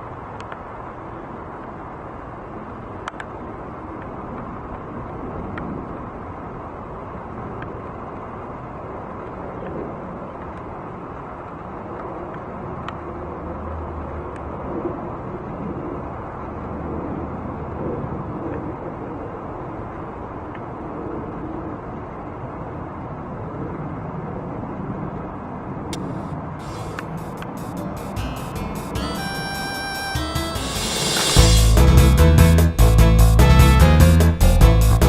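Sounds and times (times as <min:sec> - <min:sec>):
low drone: 0:26.0 - 0:35.0.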